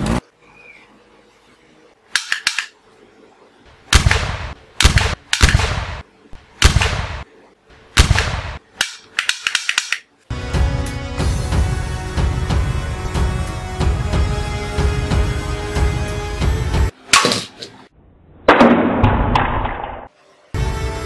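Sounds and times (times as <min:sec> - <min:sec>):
pistol gunshots echoing: 0:03.9 - 0:06.0, 0:06.6 - 0:07.2, 0:08.0 - 0:09.0.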